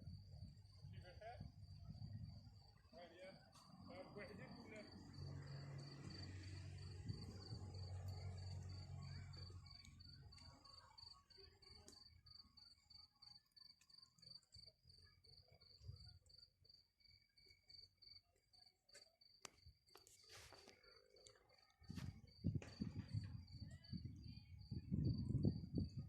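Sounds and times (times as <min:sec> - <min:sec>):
cricket chirping: 0:00.0 - 0:26.0
low hum: 0:03.6 - 0:10.8.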